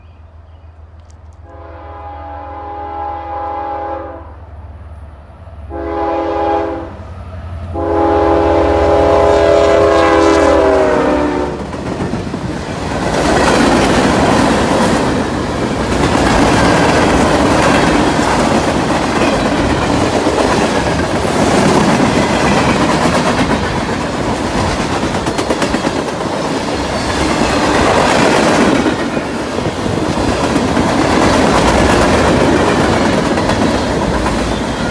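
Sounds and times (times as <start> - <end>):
freight train wheels rumbling: 0.0 - 34.9
locomotive air horn blasts: 1.4 - 4.4, 5.7 - 7.1, 7.7 - 11.6
wheels clacking on rail joints: 11.6 - 34.9.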